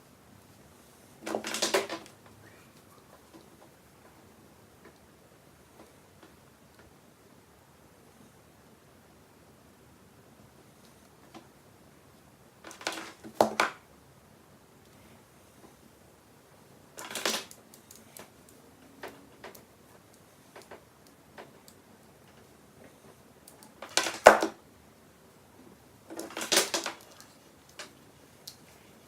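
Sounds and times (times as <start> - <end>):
small hard objects clattering: 26.1 - 27.9.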